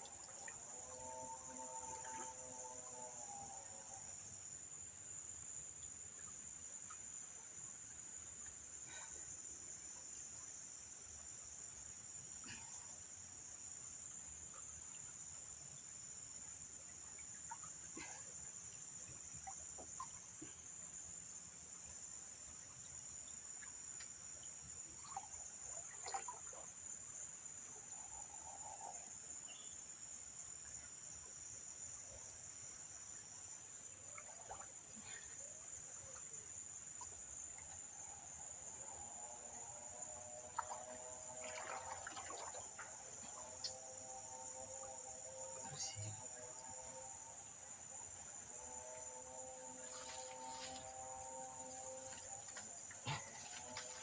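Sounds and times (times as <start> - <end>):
insects chorus shrilling: 43.4 - 46.4, 48.6 - 54.0.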